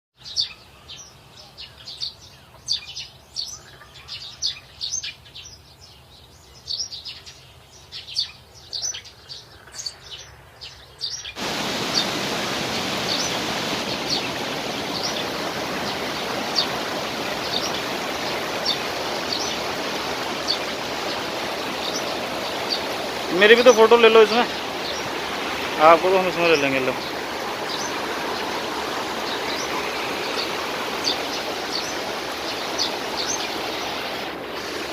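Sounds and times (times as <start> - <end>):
small birds chirping: 0.2 - 34.9
waterfall rushing: 11.4 - 34.9.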